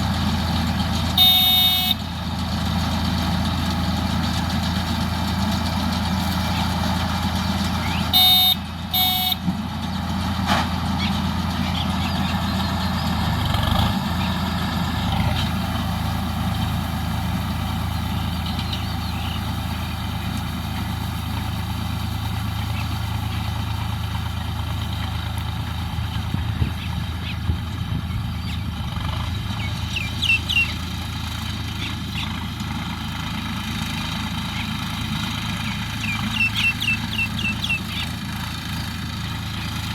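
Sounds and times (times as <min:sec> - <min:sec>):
tractor engine running steadily: 0:00.0 - 0:39.9
short high beeps: 0:01.2 - 0:02.0, 0:08.2 - 0:09.4.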